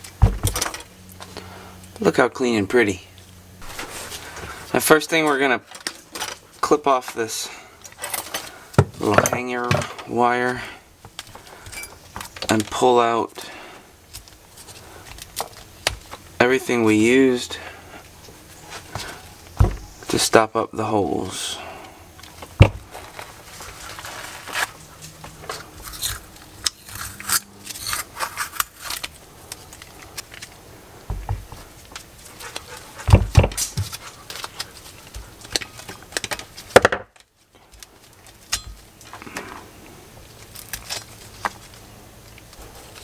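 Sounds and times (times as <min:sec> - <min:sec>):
metal knocks set down: 0:00.2 - 0:00.8
small parts and tools handled: 0:22.2 - 0:32.2, 0:40.3 - 0:41.8.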